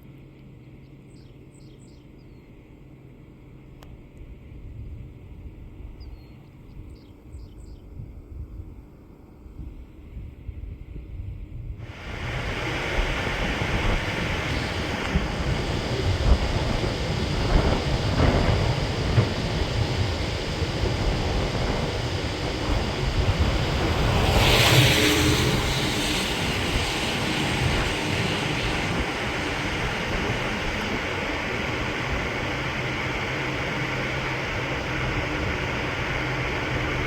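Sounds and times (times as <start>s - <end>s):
wind buffeting microphone: 10.2s - 37.0s.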